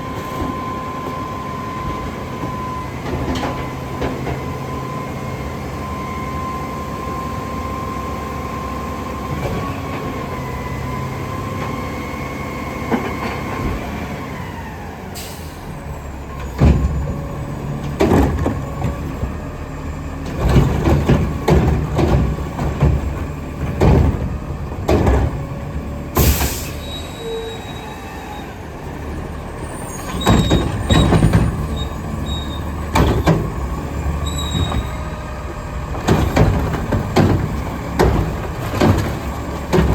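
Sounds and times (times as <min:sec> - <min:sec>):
truck engine and hydraulics whining: 0:00.0 - 0:39.9
heavy metallic bangs and clanks: 0:35.9 - 0:39.9.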